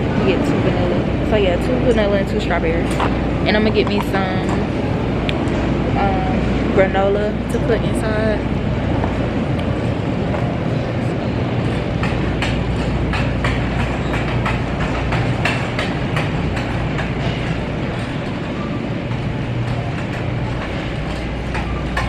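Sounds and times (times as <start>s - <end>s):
shopping cart rattling: 11.5s - 22.0s.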